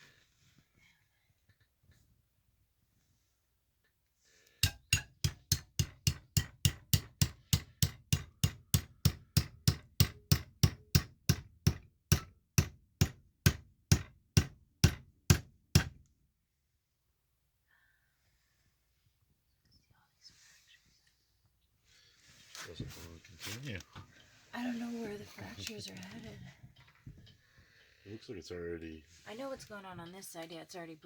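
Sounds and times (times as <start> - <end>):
hammer striking rock: 4.6 - 16.0.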